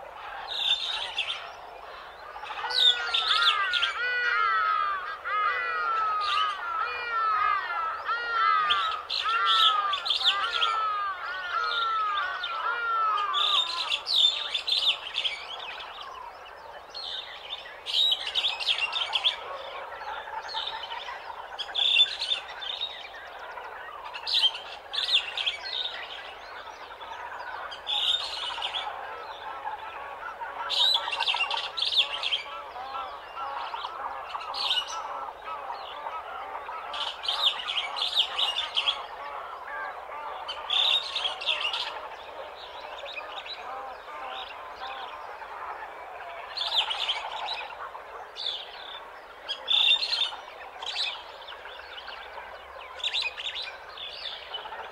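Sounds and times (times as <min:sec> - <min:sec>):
birds chirping and calling: 0:00.0 - 0:54.9
loud high bird song: 0:00.0 - 0:54.9.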